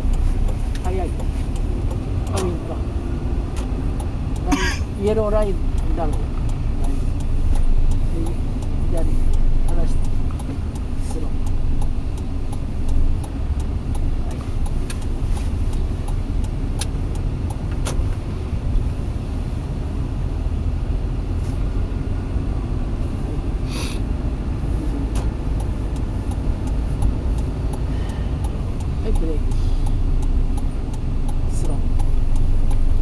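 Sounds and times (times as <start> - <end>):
car engine and road rumble: 0.0 - 33.0
brief hiss: 23.7 - 24.0.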